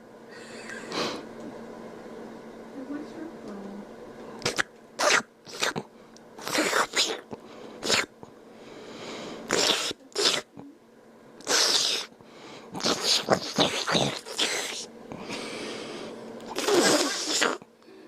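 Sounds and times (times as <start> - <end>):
man slurping loudly: 4.4 - 5.8, 6.4 - 8.1, 9.5 - 10.5, 11.4 - 12.1, 12.8 - 14.9, 16.5 - 17.6.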